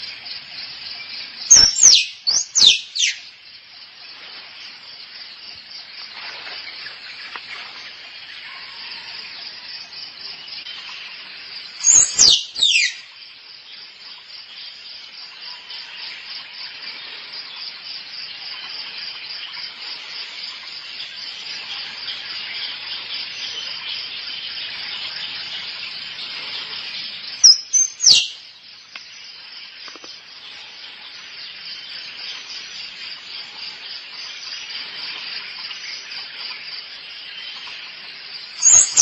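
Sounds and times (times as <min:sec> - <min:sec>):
sharp squirrel calls: 0:01.5 - 0:03.2, 0:11.8 - 0:13.0, 0:27.4 - 0:28.4, 0:38.6 - 0:39.0.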